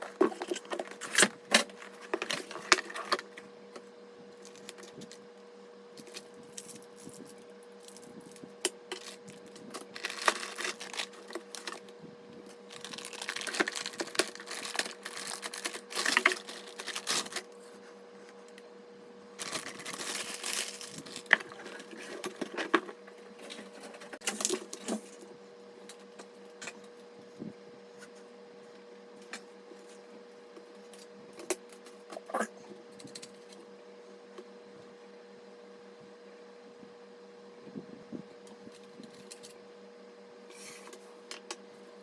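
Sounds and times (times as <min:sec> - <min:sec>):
plastic packaging rustling: 0:00.0 - 0:03.4, 0:06.0 - 0:17.7, 0:19.4 - 0:24.9
faint steady hum: 0:00.0 - 0:42.0.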